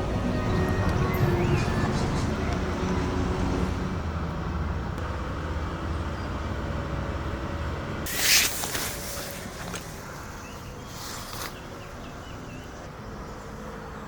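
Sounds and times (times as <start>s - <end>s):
traffic rumble: 0.0s - 14.0s
loud hiss: 8.1s - 9.7s.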